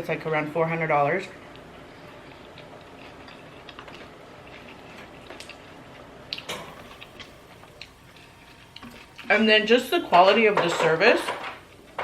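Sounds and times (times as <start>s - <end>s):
person chewing salad: 1.5s - 9.3s.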